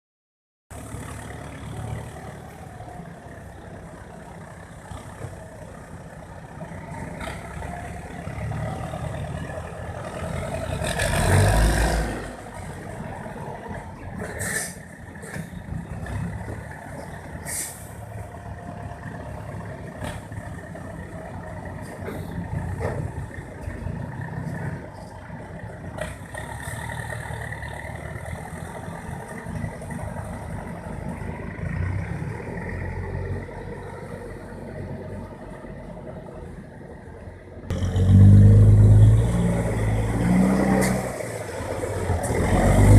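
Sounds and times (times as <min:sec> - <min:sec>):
short air hisses: 0:17.4 - 0:17.9.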